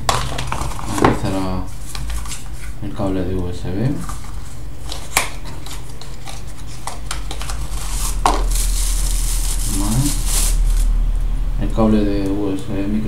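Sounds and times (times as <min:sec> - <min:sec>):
steady low hum: 0:00.0 - 0:13.0
packaging rustling: 0:04.0 - 0:11.0.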